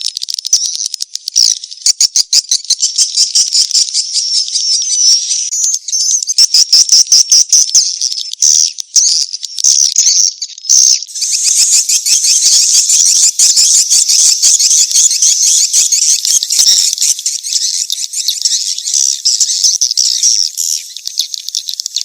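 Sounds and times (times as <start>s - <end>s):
swiftlets chittering: 11.1s - 22.0s.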